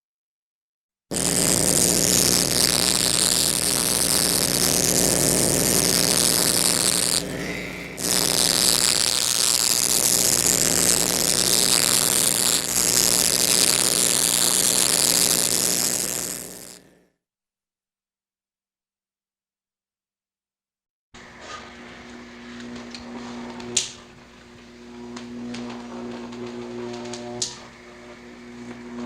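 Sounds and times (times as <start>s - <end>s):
steady low hum: 1.1s - 16.9s, 21.8s - 29.0s
harsh static-like hissing drone: 1.1s - 17.0s, 21.6s - 29.0s.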